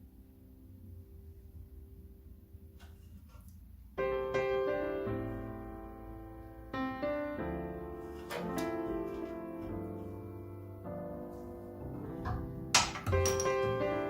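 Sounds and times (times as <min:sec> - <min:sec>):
piano music: 0:03.9 - 0:14.0.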